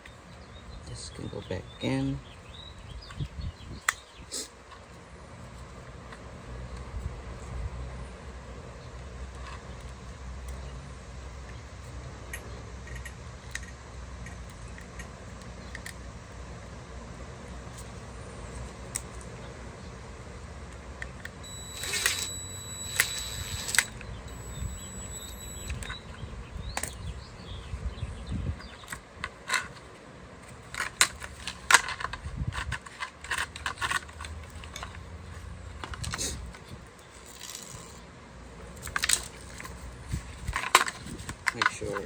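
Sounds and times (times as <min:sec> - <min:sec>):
small parts and tools rattling: 0:21.0 - 0:26.2, 0:28.6 - 0:42.0
steady high-pitched tone: 0:21.4 - 0:26.2.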